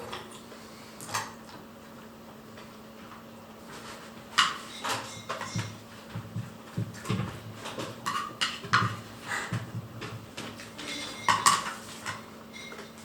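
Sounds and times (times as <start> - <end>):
steady low hum: 0.0 - 13.0
dishes and cutlery clinking: 3.8 - 5.8, 10.6 - 13.0.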